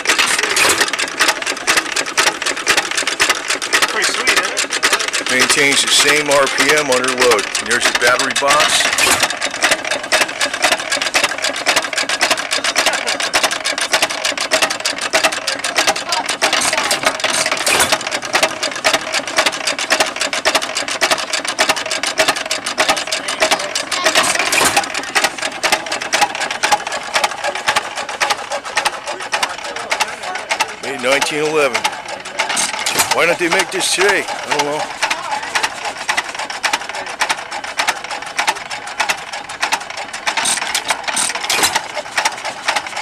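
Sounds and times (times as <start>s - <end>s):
farm engine clattering: 0.0s - 43.0s.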